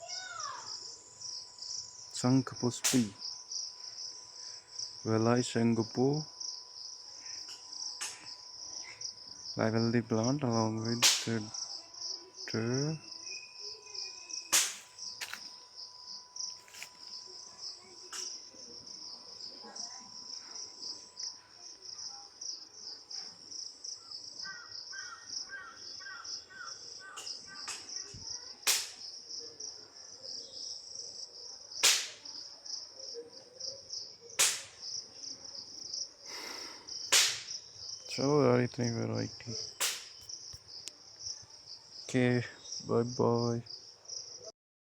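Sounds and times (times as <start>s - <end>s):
crickets chirping: 0.0s - 44.5s
sharp clicks or knocks: 28.7s - 29.0s, 39.8s - 40.2s.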